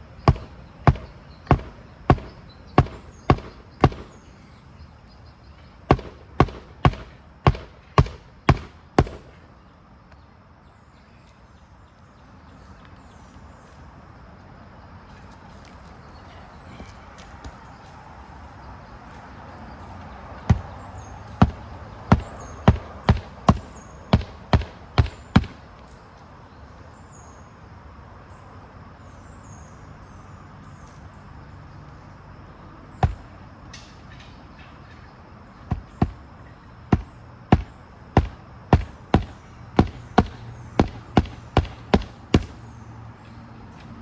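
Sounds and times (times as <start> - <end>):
hammering nails into shingle: 0.1 - 4.4, 5.9 - 9.4, 20.4 - 25.8, 33.0 - 33.4, 35.6 - 36.3, 36.9 - 42.8.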